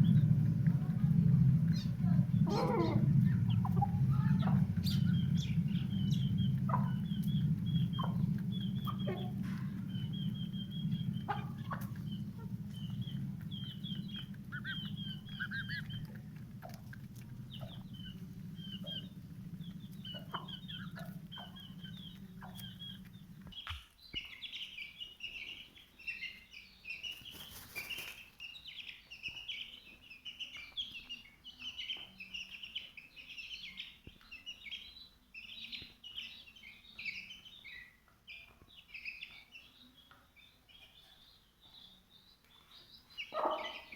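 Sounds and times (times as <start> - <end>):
low hum: 0.0 - 23.8
birds chirping: 0.0 - 43.9.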